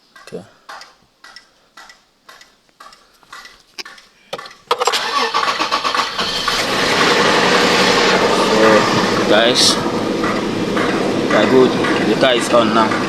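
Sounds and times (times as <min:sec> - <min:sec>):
car engine starting and running: 0:04.4 - 0:13.0.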